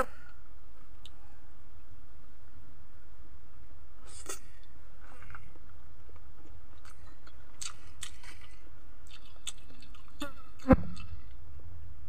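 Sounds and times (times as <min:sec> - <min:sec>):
steady low hum: 0:00.0 - 0:12.0
chewing with wet mouth clicks: 0:06.8 - 0:10.3.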